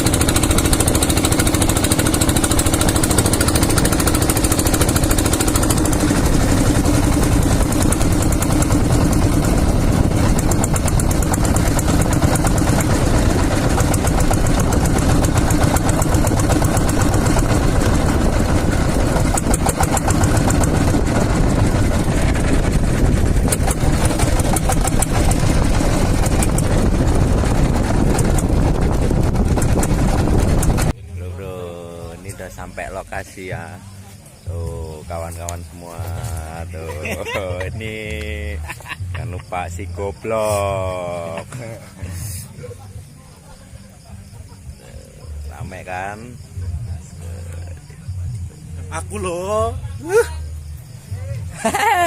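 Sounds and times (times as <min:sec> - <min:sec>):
vehicle engine running: 0:00.0 - 0:52.0
wind and road noise: 0:02.4 - 0:31.0.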